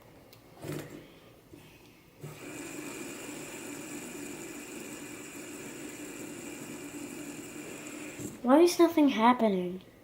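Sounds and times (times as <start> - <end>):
fidget spinner whirring: 2.2 - 8.7.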